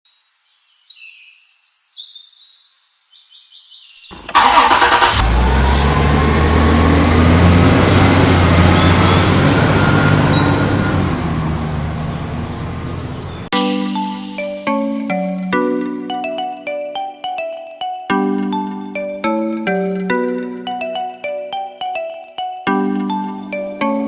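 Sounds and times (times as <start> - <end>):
engine starting and running: 4.1 - 13.5.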